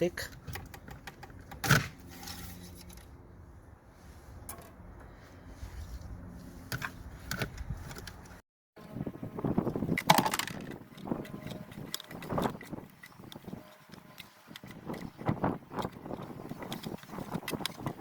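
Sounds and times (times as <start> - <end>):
tools and engine parts clinking: 9.9 - 15.2.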